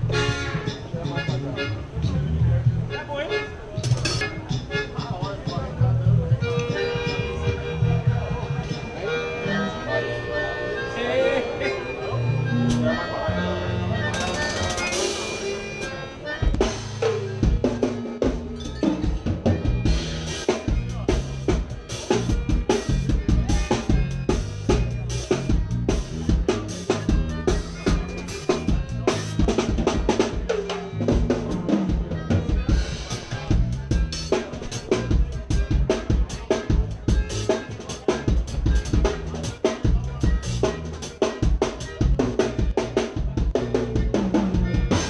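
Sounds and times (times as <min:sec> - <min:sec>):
band playing: 0:00.0 - 0:45.0
moving bass line: 0:00.0 - 0:45.0
drum kit kick and snare hits: 0:16.4 - 0:45.0.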